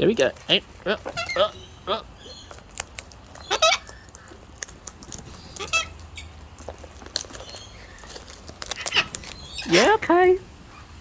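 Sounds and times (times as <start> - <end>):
cockatoo squawks: 0.8 - 2.1, 3.4 - 4.4.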